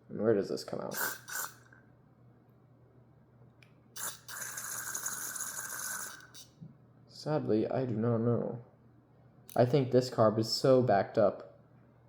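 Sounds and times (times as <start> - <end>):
aerosol spray hissing: 0.9 - 1.7, 4.0 - 6.5.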